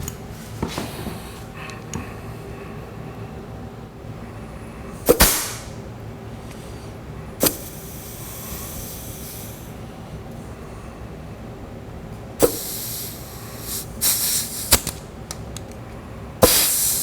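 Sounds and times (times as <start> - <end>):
compressed air blast and hiss: 5.1 - 5.8, 7.4 - 9.7, 12.4 - 15.0, 16.4 - 17.0.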